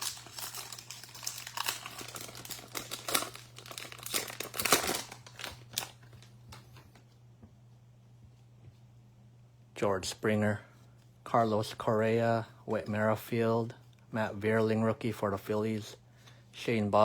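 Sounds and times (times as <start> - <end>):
wrapper tearing and crinkling: 0.0 - 6.1.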